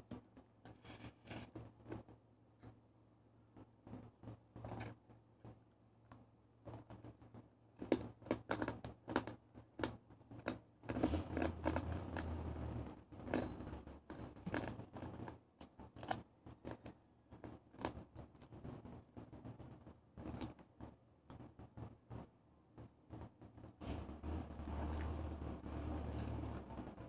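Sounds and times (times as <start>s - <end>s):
crunchy chewing: 7.8s - 12.6s, 13.2s - 15.4s.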